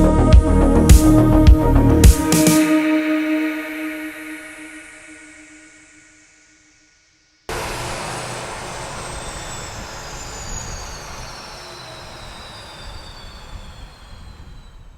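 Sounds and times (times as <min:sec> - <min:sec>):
model plane motor whining: 0:07.5 - 0:14.9
rushing air noise: 0:07.5 - 0:14.9.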